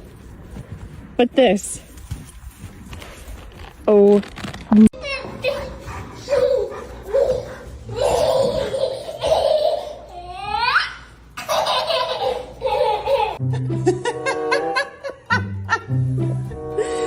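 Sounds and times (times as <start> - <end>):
person laughing hard: 11.5 - 16.0.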